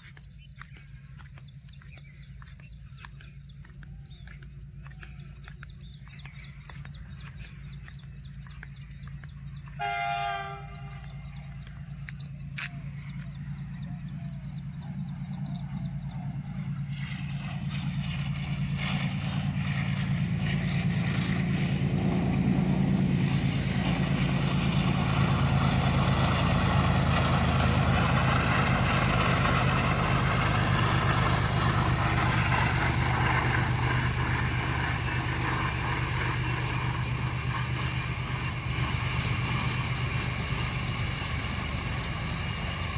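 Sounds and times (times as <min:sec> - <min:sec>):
train rumble and engine hum: 0:00.0 - 0:42.9
train horn blast: 0:09.7 - 0:11.5.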